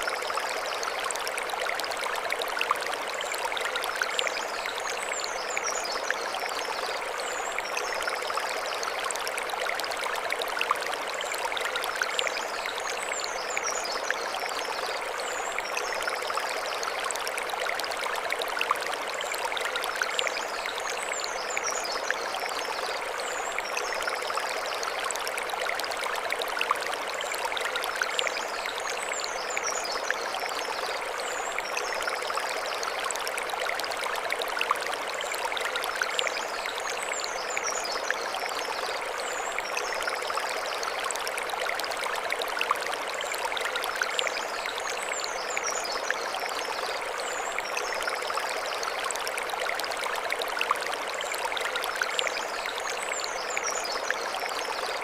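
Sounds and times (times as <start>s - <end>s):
stream running over stones: 0.0s - 55.0s.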